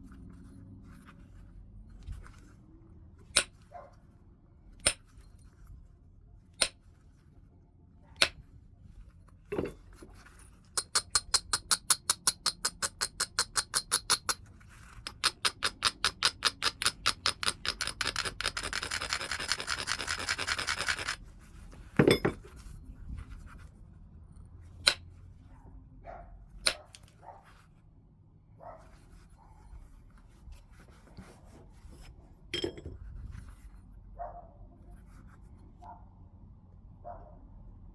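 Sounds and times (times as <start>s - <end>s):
sharp stone clicks: 15.1s - 21.2s
stone edge scraping: 31.8s - 33.0s.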